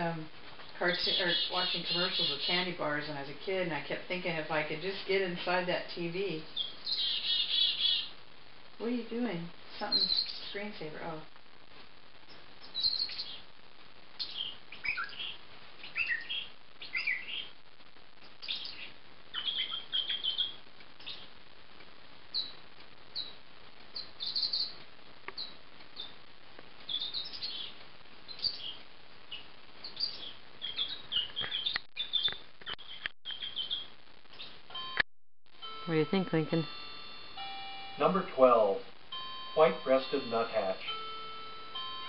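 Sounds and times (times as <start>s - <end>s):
recorded bird calls through speakers: 0.8s - 3.3s, 6.0s - 8.2s, 9.8s - 10.7s, 12.3s - 13.5s, 14.2s - 17.5s, 18.3s - 21.3s, 22.3s - 22.6s, 23.2s - 24.8s, 26.9s - 34.9s, 39.2s - 41.8s.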